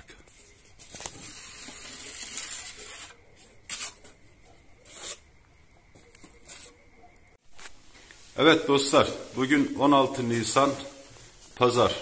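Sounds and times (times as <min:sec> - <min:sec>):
rough scraping hiss: 0:00.0 - 0:04.1, 0:04.8 - 0:05.3, 0:07.5 - 0:12.0.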